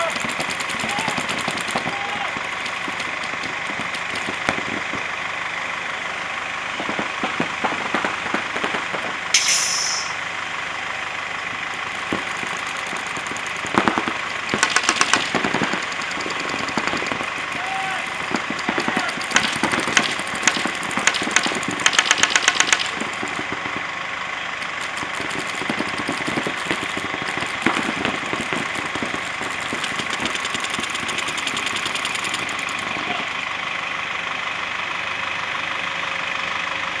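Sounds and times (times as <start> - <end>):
paintball markers firing: 0.0 - 4.5, 12.1 - 17.7, 18.3 - 23.7, 24.6 - 32.8.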